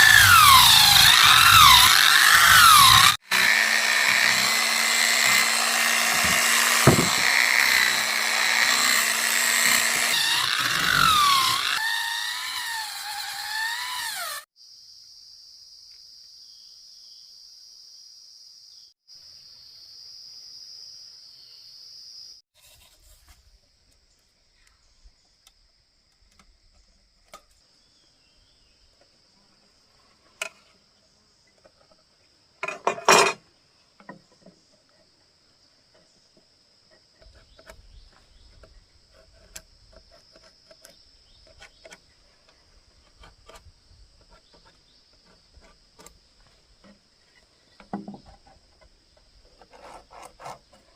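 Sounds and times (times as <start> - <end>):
insects chirring: 33.4 - 50.9.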